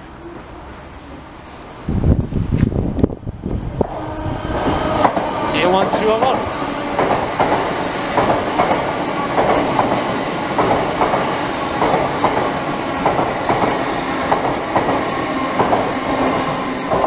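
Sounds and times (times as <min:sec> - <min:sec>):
train wheels clattering over rail joints: 0:06.1 - 0:17.0.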